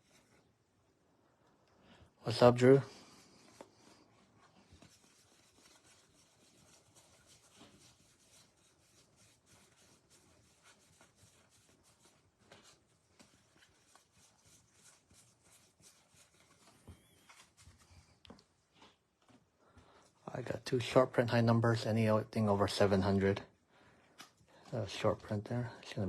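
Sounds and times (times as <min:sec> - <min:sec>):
trading cards being flipped: 0:16.3 - 0:17.8.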